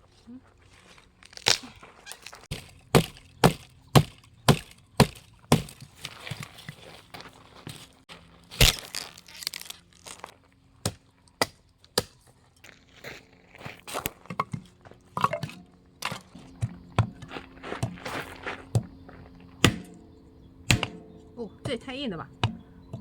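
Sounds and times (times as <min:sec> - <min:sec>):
sticks cracking and snapping: 0:01.2 - 0:06.4, 0:08.5 - 0:12.3.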